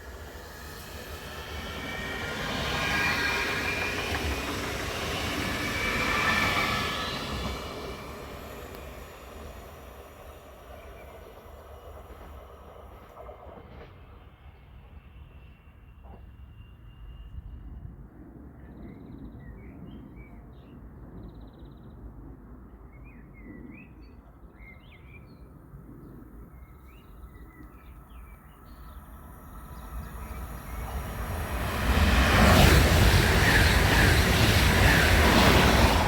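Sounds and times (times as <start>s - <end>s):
train rushing past: 0.0s - 17.0s, 28.8s - 36.0s.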